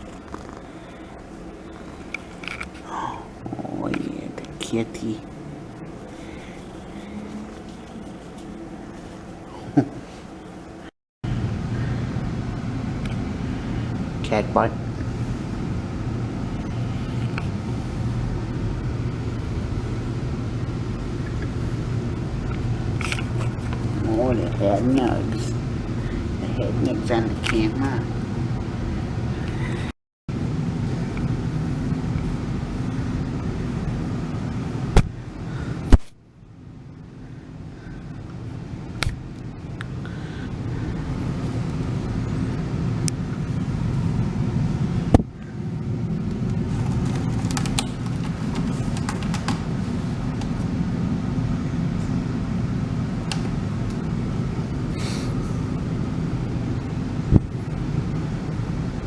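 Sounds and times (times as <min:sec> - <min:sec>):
cat rubbing against microphone: 0:05.8 - 0:09.4.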